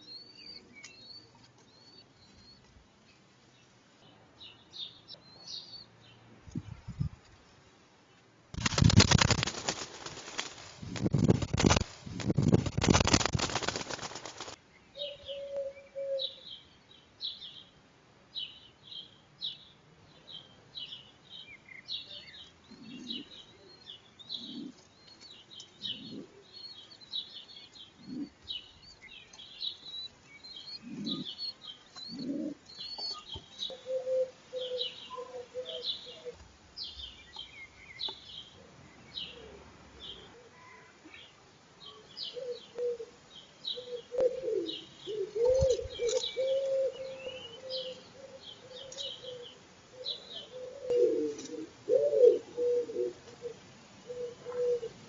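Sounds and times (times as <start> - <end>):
small birds chirping: 0.0 - 55.0
wood pigeon cooing: 15.0 - 16.4, 22.7 - 23.4, 24.3 - 24.9, 25.8 - 26.5, 27.9 - 28.5, 30.6 - 36.4, 42.3 - 55.0.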